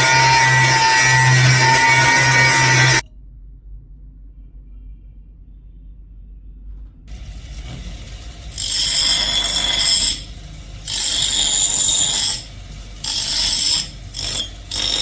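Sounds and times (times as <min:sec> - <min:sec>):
power tool whining and grinding: 0:00.0 - 0:03.0, 0:07.1 - 0:15.0
faint low hum: 0:03.0 - 0:08.6.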